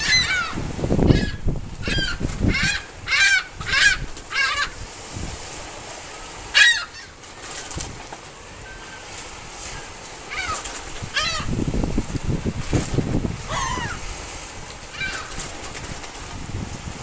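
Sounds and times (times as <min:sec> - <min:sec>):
seagulls calling: 0:00.0 - 0:04.8, 0:06.3 - 0:11.6, 0:13.4 - 0:14.2, 0:14.9 - 0:15.8.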